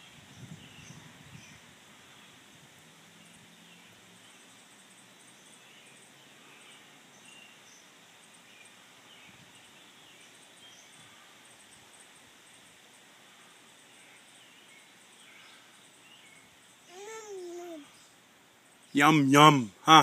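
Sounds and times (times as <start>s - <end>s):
distant bird chirps: 0.0s - 20.0s
faint outdoor hiss: 0.0s - 20.0s.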